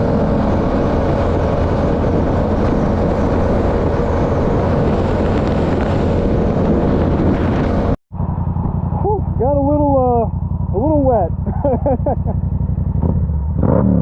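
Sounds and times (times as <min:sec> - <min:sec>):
wind noise on microphone: 0:00.0 - 0:09.2
motorcycle engine running: 0:00.0 - 0:14.0.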